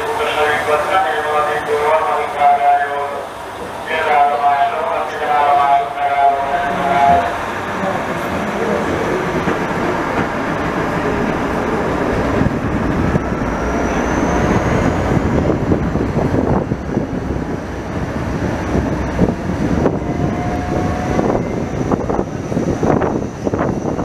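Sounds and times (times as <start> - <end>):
train wheels rumbling on rails: 0.0 - 24.0
wind rushing: 6.5 - 24.0.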